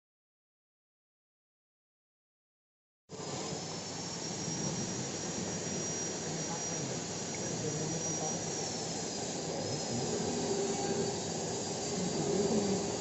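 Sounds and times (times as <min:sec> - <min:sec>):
faint high whine: 0:03.1 - 0:13.0
machinery rumbling and hissing: 0:03.1 - 0:13.0.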